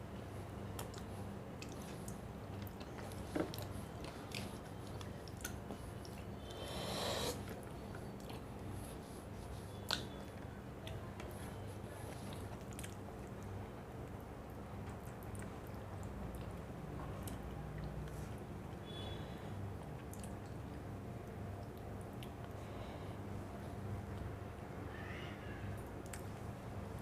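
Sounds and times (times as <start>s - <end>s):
person chewing food: 0.8s - 6.4s.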